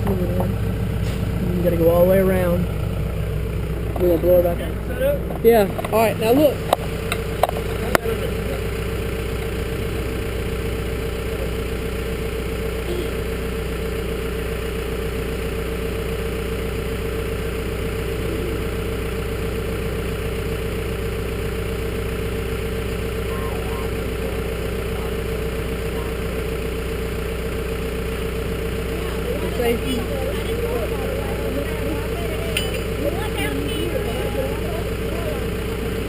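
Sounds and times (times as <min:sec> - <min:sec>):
engine idling: 0:00.0 - 0:36.0.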